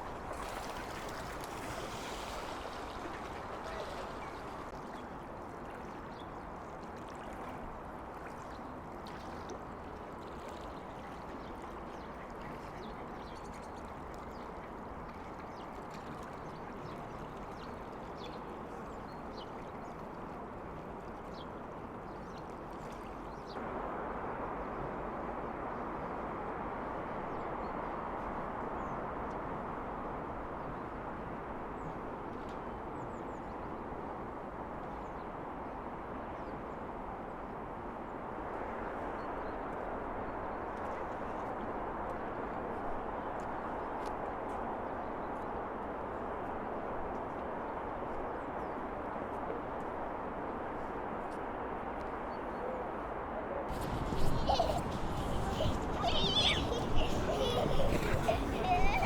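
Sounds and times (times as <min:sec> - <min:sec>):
ducks quacking: 0:53.7 - 0:59.0
heavy traffic roar: 0:53.7 - 0:59.0.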